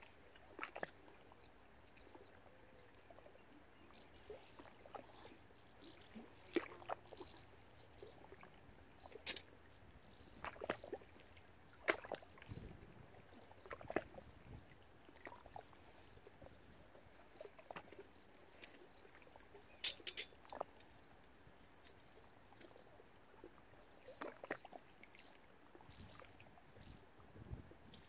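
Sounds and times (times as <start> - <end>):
light water sounds: 0.0 - 28.0.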